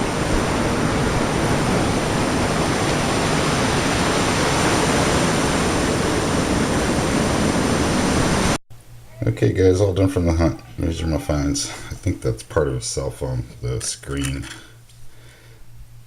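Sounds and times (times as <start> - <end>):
ocean surf: 0.0 - 8.6.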